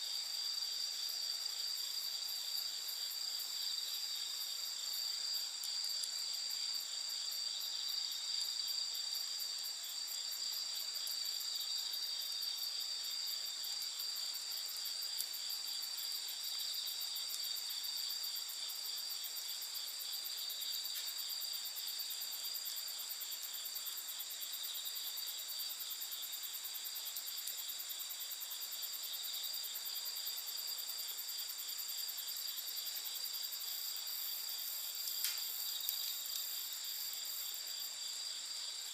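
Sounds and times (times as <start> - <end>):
crickets chirring: 0.0 - 38.9
faint click: 35.0 - 36.5.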